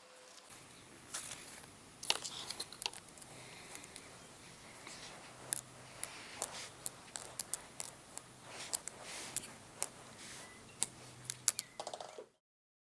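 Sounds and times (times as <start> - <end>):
faint steady hum: 0.0 - 12.3
plastic toy pieces clicking: 10.8 - 12.2.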